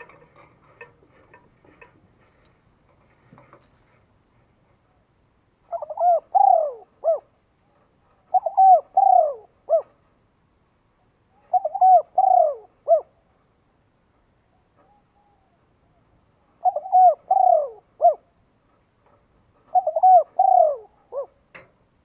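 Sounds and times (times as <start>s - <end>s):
dove cooing: 5.7s - 10.0s, 11.3s - 13.2s, 14.6s - 18.4s, 19.6s - 21.7s.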